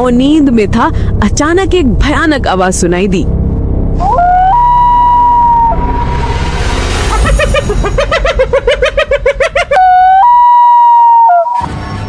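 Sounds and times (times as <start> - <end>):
hyena cackling: 7.1 - 11.6.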